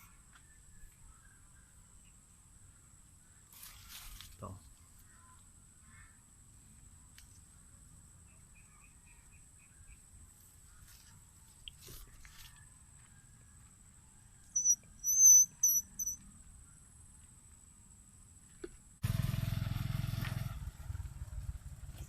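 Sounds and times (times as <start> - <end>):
high-pitched insect drone: 14.6 - 16.2
shrill whistles: 14.6 - 16.2.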